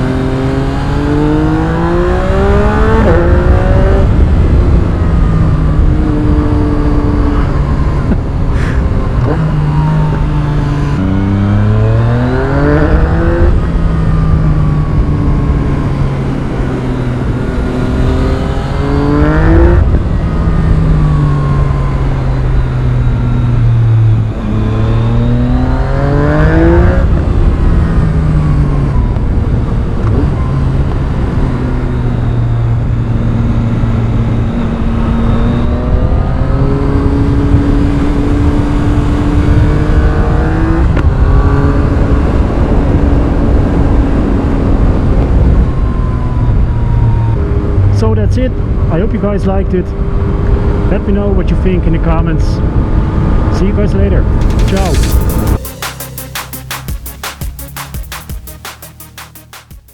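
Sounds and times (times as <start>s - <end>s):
motorcycle engine accelerating: 0.0s - 51.7s, 52.6s - 59.9s
wind rushing: 54.1s - 58.2s.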